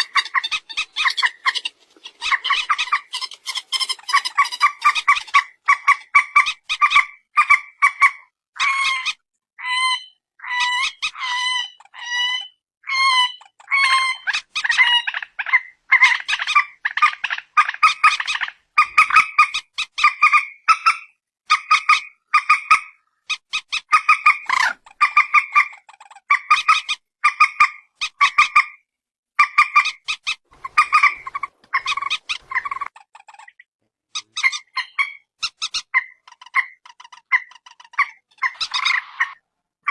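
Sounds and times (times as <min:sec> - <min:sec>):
bird calling harsh clipped notes: 0:29.4 - 0:33.6, 0:34.2 - 0:39.9.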